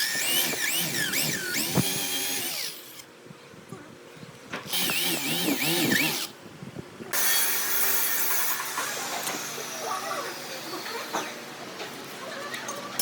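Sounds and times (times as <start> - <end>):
power tool cutting wood: 0.0 - 3.0, 4.7 - 6.3, 7.2 - 11.3.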